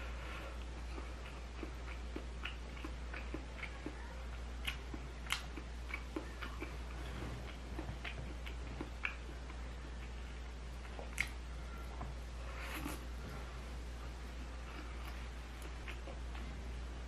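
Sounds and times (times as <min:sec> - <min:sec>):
steady low hum: 0:00.0 - 0:17.0
wet chewing clicks: 0:00.6 - 0:10.1, 0:10.8 - 0:11.4.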